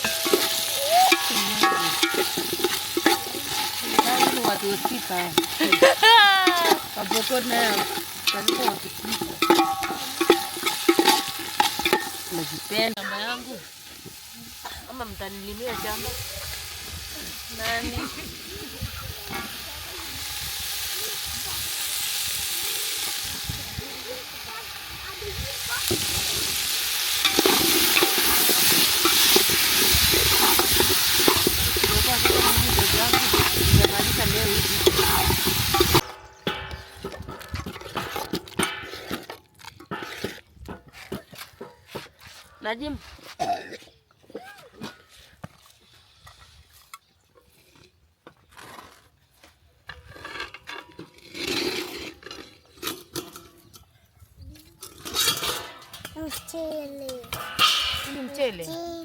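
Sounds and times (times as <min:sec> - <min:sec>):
utensil scraping a pan: 0:00.0 - 0:14.8, 0:25.8 - 0:42.5, 0:49.9 - 0:53.8, 0:54.8 - 0:56.6
food sizzling in a pan: 0:00.0 - 0:36.6.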